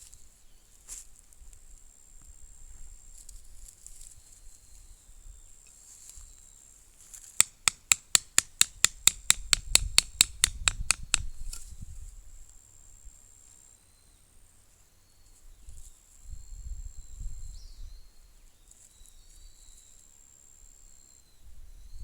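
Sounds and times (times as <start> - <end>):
rapid sharp knocks: 7.4 - 11.3.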